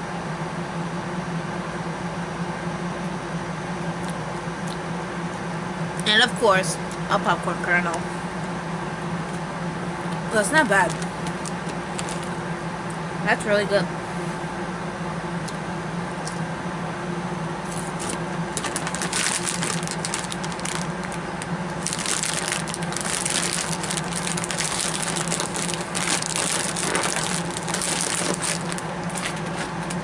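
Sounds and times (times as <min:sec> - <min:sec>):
steady low hum: 0:00.0 - 0:30.0
crunchy snack chewing: 0:10.9 - 0:12.4, 0:17.7 - 0:30.0.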